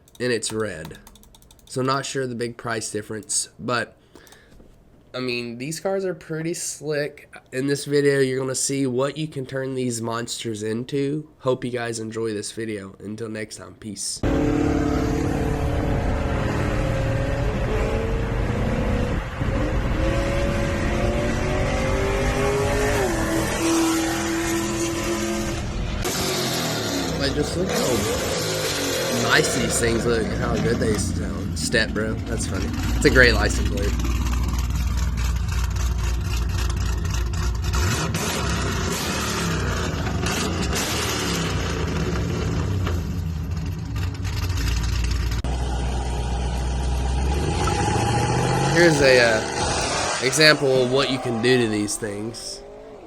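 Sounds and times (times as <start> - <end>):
car engine under throttle: 14.2 - 51.4.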